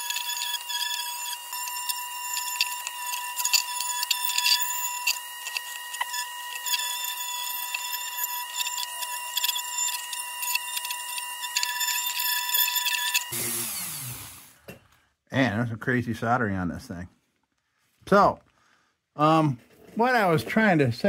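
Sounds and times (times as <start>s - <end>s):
abrasive wheel scratching tin: 0.0s - 13.4s
rotary tool whining: 0.0s - 14.6s.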